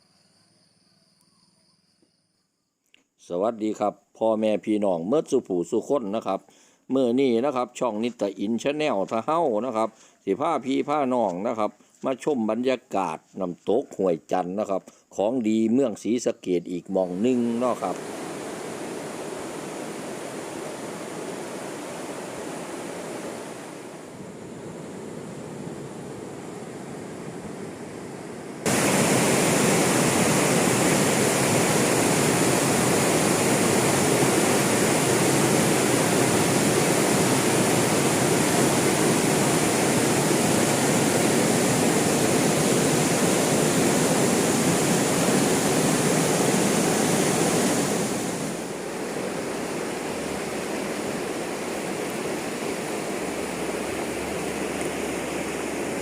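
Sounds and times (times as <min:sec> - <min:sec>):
waterfall rushing: 0:17.1 - 0:24.2, 0:28.6 - 0:56.0.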